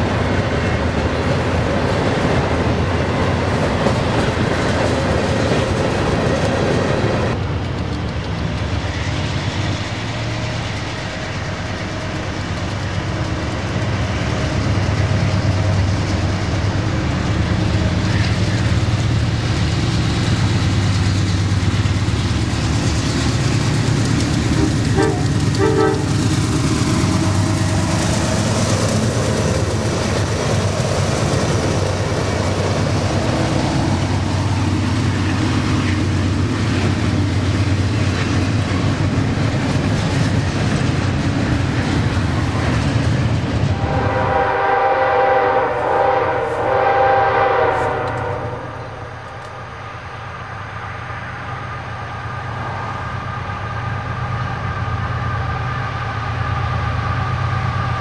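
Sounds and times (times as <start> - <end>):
freight train wheels clattering: 0.0 - 44.6
locomotive air horn: 24.6 - 26.2, 43.7 - 48.8.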